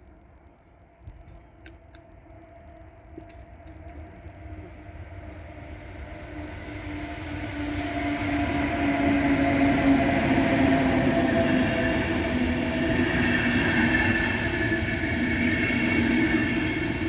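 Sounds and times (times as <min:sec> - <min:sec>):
faint clicks: 0:00.0 - 0:05.9
train approaching rumble: 0:00.0 - 0:17.0.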